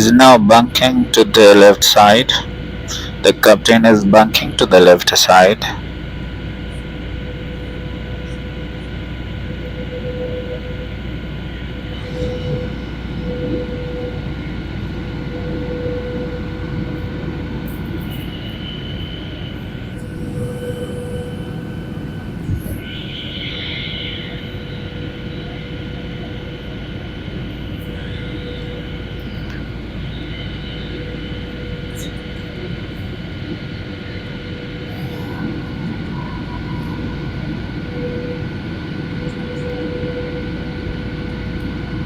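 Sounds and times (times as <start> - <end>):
airliner engine drone: 0.0 - 42.0
steady whining tones: 0.0 - 42.0.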